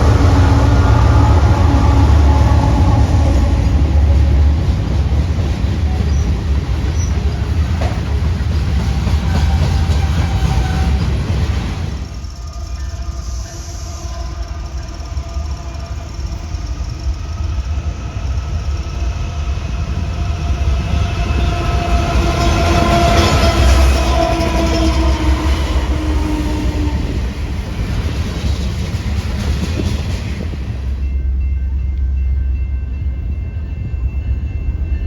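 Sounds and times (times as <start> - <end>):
train rumbling past: 0.0 - 35.0.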